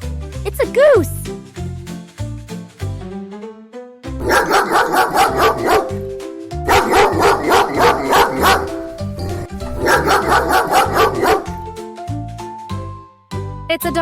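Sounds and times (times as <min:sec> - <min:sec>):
background music: 0:00.0 - 0:14.0
dog barking rapidly: 0:04.2 - 0:06.1, 0:06.7 - 0:11.6.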